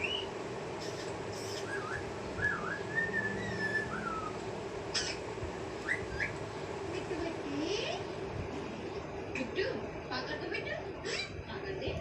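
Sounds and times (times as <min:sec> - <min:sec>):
parrot whistling: 0:00.0 - 0:05.2, 0:05.8 - 0:06.4
parrot chirp: 0:00.0 - 0:06.4
steady low hum: 0:00.0 - 0:12.0.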